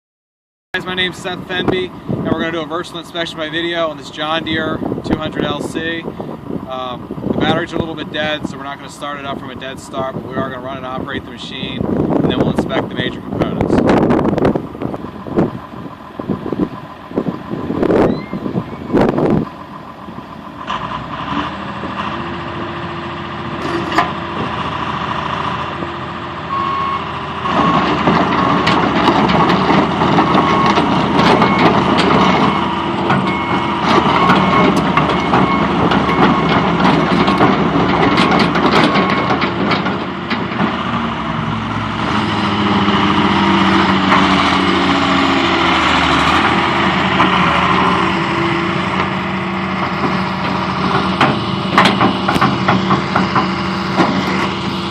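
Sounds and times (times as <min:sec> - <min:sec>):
excavator diesel engine running: 0:00.8 - 0:54.9
machine knocks and clanks: 0:27.6 - 0:40.8, 0:49.8 - 0:54.5.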